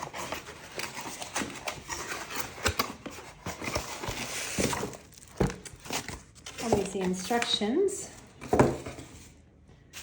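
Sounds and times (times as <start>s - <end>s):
packaging rustling: 0.0s - 7.7s.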